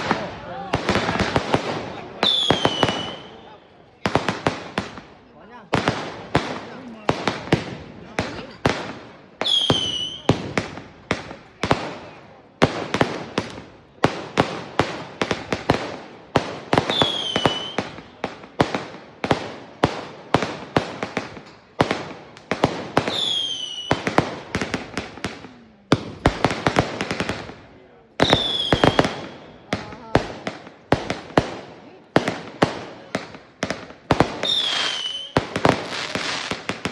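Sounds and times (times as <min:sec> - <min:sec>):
fireworks bangs and crackling: 0:00.0 - 0:36.9
falling firework whistle: 0:09.4 - 0:10.3, 0:34.4 - 0:35.4.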